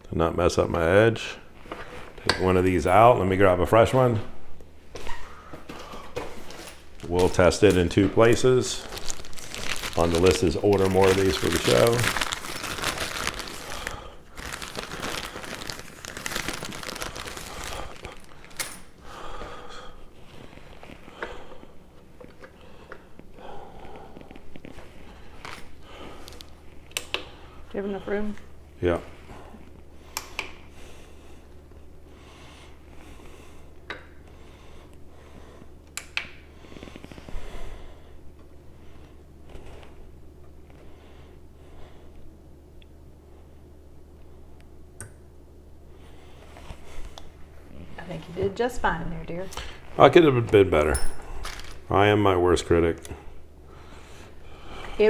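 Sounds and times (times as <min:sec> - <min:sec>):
crinkly material rustling: 0:06.3 - 0:18.9, 0:49.7 - 0:51.9.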